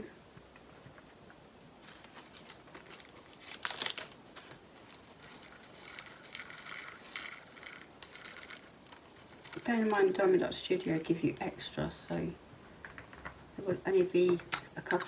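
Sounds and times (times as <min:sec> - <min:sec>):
plastic bags crinkling: 0:01.8 - 0:13.2
tiny resin beads rattling: 0:04.8 - 0:11.7.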